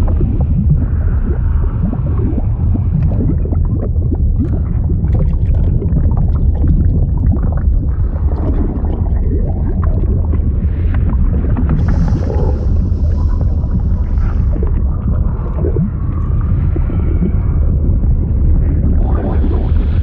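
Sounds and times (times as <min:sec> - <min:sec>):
bubbling pops: 0:00.0 - 0:19.7
deep underwater rumble: 0:00.0 - 0:20.0.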